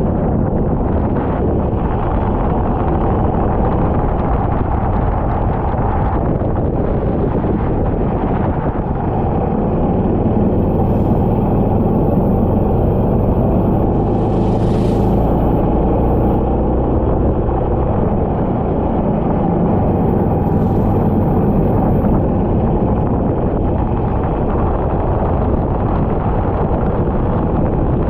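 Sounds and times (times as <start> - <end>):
kart engine running: 7.3 - 26.1
rush of hiss: 13.8 - 16.4.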